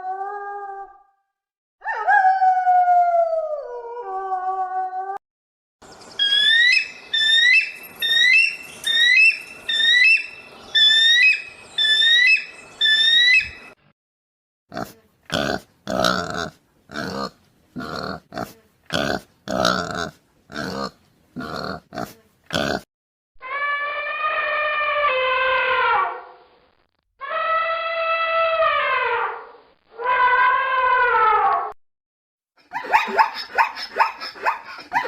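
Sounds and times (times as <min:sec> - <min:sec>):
animal high peeps: 0:06.2 - 0:13.8
animal rough grunts: 0:14.7 - 0:22.8.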